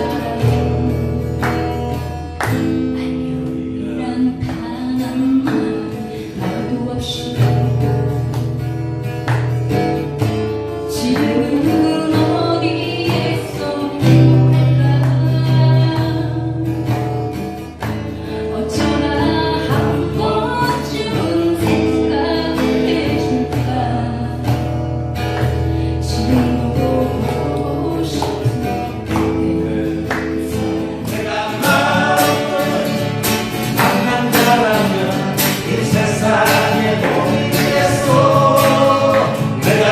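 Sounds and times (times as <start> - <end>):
voices singing: 0.0 - 1.2, 11.0 - 16.4, 26.1 - 39.9
acoustic guitars strumming: 0.0 - 39.9.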